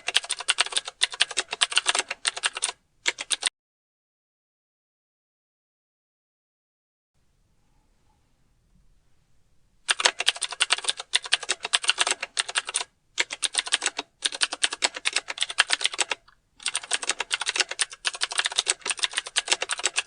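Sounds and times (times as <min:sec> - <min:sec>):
keyboard typing clicks: 0:00.0 - 0:03.5, 0:09.9 - 0:20.0.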